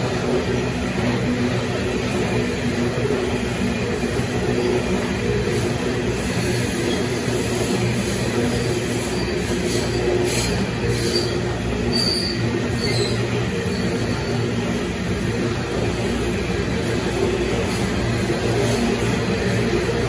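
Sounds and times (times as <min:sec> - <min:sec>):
train wheels rumbling on track: 0:00.0 - 0:20.0
high-pitched wheel squeals: 0:08.9 - 0:14.6.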